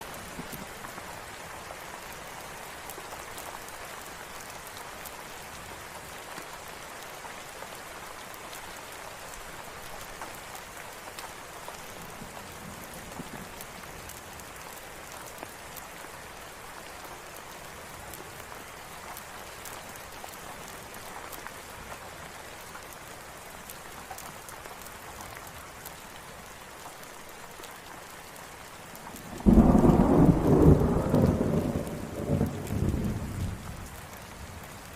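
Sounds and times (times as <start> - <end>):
steady rain falling: 0.0 - 34.9
thunder rumbling: 29.3 - 34.0.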